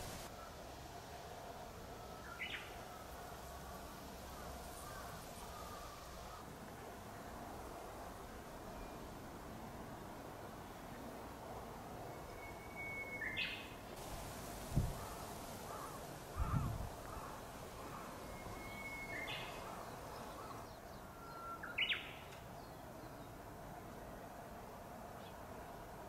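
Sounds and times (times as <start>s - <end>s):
bird singing whistled song: 12.1s - 13.8s, 18.2s - 19.6s, 21.0s - 22.2s.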